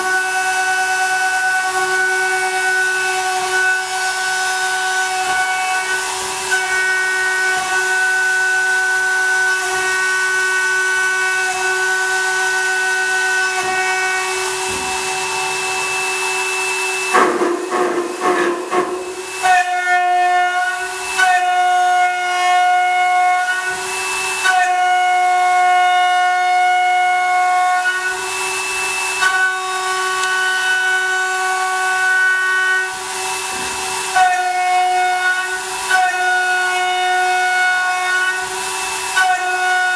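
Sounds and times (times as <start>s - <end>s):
milling machine cutting metal: 0.0s - 39.9s.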